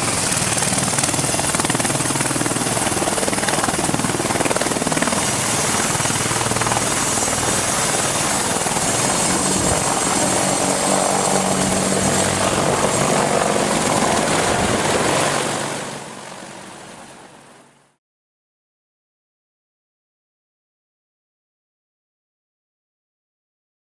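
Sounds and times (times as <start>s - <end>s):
helicopter rotor and engines: 0.0s - 18.0s.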